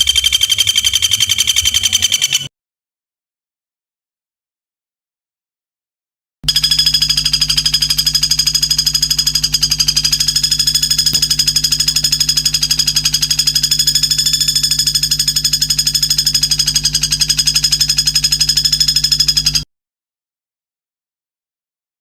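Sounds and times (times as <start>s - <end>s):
bird buzzing trill: 0.0s - 2.5s.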